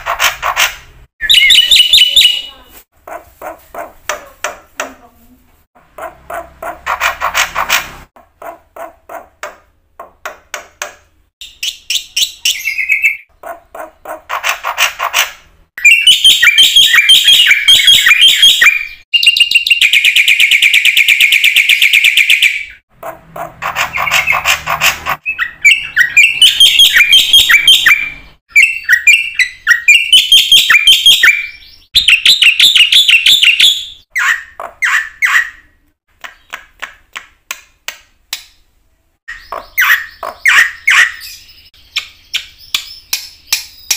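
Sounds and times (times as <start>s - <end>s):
starling singing: 1.2s - 2.7s, 11.4s - 14.2s, 15.8s - 22.4s, 23.2s - 35.7s, 39.3s - 43.9s.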